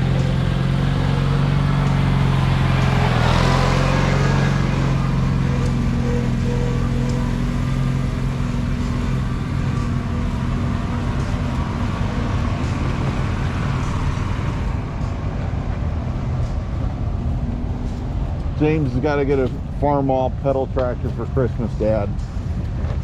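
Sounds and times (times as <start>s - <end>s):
engine humming steadily: 0.0s - 23.0s.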